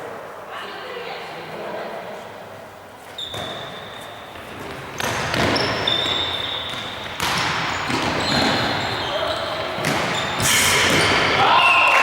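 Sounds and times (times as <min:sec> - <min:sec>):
indoor hall noise: 0:00.0 - 0:12.0
shoes squeaking on floor: 0:03.0 - 0:11.5
ball bouncing: 0:03.3 - 0:11.4.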